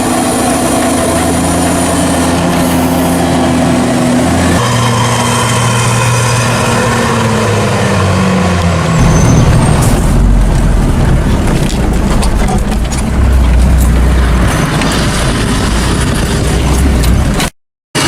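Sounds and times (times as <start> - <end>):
diesel engine rumble: 0.0 - 17.5
knocks and rattles: 9.0 - 17.5.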